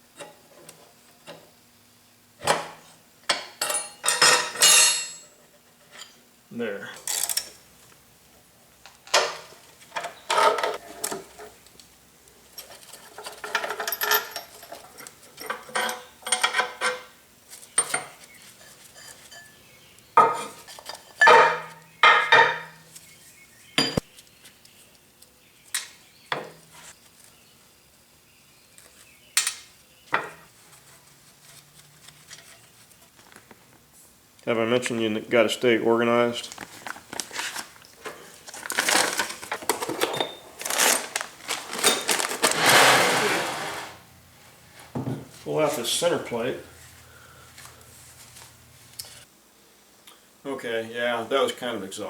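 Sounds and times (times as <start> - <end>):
metal parts and tools clanking: 3.3 - 6.1, 10.0 - 11.5, 12.6 - 17.1, 38.7 - 44.0.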